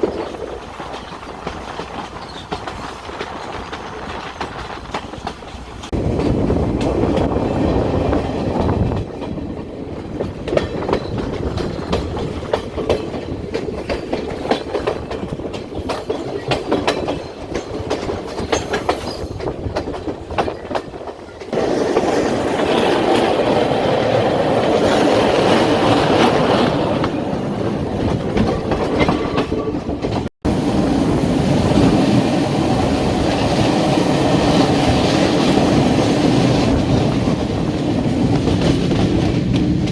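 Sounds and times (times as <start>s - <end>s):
wheels clicking over rail joints: 0.0s - 30.3s
train running on rails: 0.0s - 39.9s.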